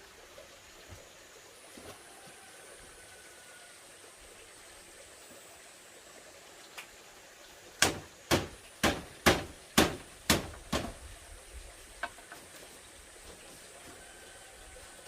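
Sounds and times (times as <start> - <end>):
hand tool striking bamboo: 7.8 - 11.0.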